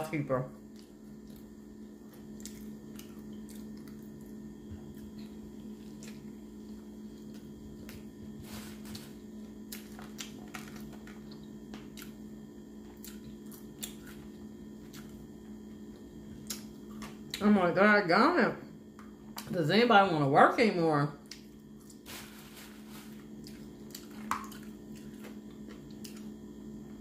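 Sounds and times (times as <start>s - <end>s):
low electrical hum: 0.0s - 27.0s
chewing and mouth sounds: 0.6s - 8.1s, 9.6s - 17.4s, 21.2s - 22.0s, 23.4s - 26.4s.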